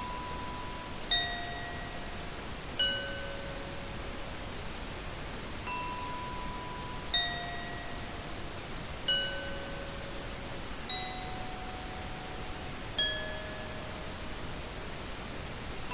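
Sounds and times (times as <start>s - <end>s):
steady hiss: 0.0s - 15.9s
bell-like chime notes: 13.0s - 14.1s.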